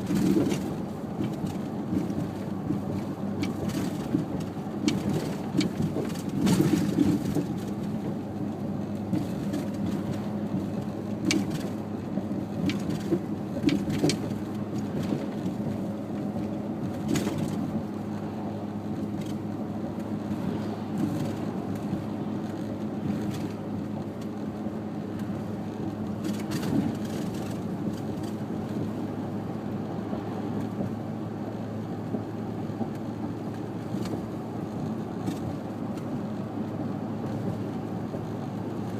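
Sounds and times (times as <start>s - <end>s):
car engine and road noise: 0.0s - 38.9s
sharp clicks and knocks: 9.0s - 18.0s.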